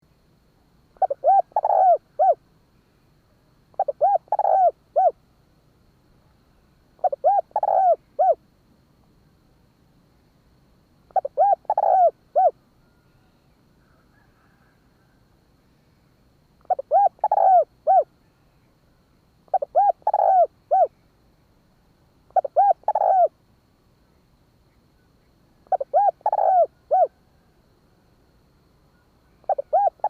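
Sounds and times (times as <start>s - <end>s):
dove cooing: 1.0s - 2.4s, 3.7s - 5.2s, 7.0s - 8.4s, 11.1s - 12.6s, 16.6s - 18.1s, 19.5s - 21.0s, 22.3s - 23.4s, 25.6s - 27.5s, 29.3s - 30.0s.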